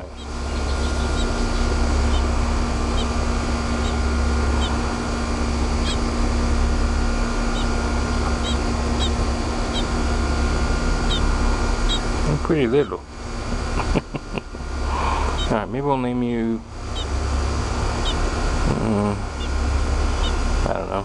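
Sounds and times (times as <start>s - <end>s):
baby bird peeping: 0.0s - 6.2s, 7.3s - 13.0s, 15.2s - 15.7s, 16.8s - 20.5s
low hum and rumble: 0.0s - 21.0s.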